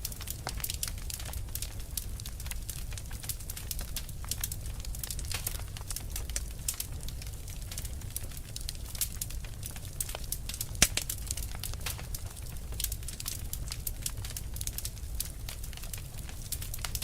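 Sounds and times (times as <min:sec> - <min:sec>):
fire crackling: 0:00.0 - 0:17.0
fire pop: 0:10.7 - 0:12.0.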